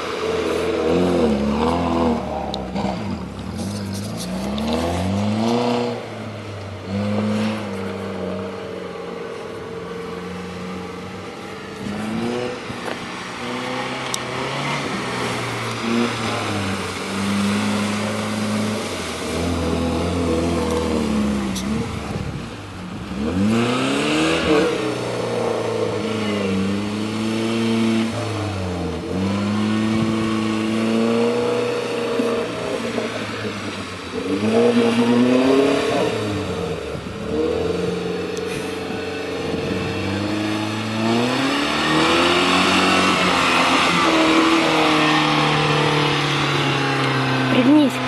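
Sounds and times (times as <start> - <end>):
engine revving under load: 0.0 - 8.7, 10.2 - 48.0.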